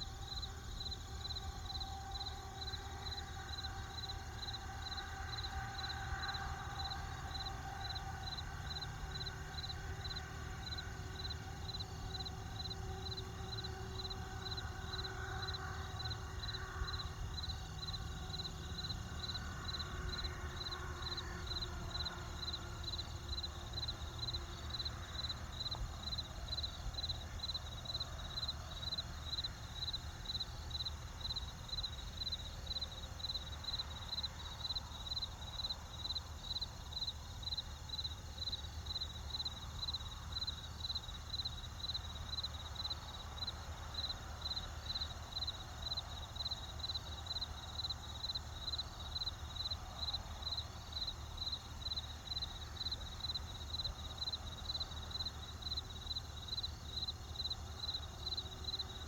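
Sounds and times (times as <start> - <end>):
faint sustained tones: 0.0 - 35.0
cricket chirping: 0.0 - 59.0.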